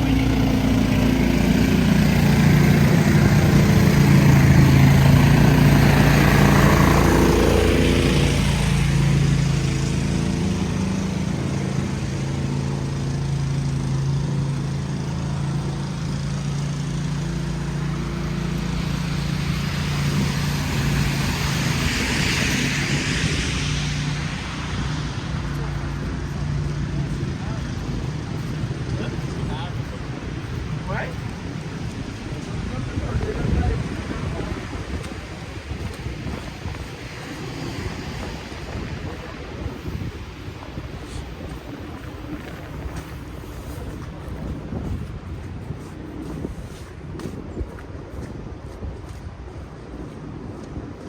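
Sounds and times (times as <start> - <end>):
engine running with low hum: 0.0 - 51.0.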